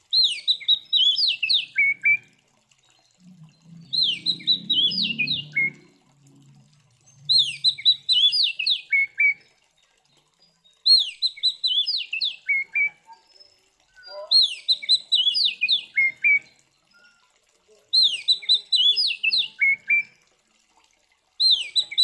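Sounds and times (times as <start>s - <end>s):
bird singing whistled phrase: 3.8s - 5.9s, 10.9s - 17.2s, 21.4s - 22.0s.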